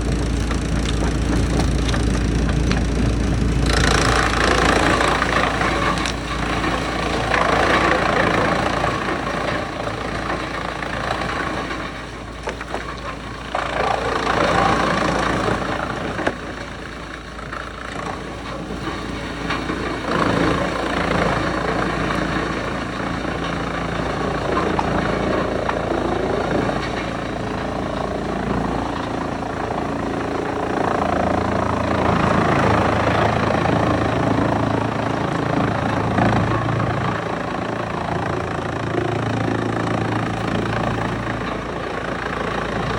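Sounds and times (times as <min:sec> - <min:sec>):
wood chipper running: 0:00.0 - 0:42.9.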